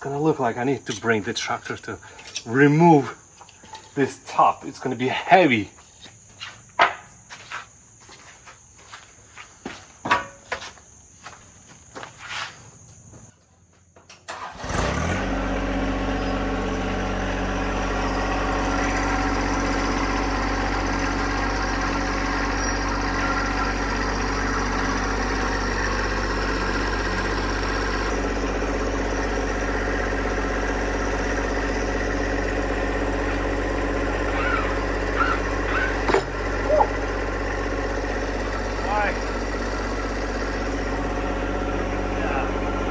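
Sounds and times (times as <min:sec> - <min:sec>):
tractor engine running: 0:14.3 - 0:42.9.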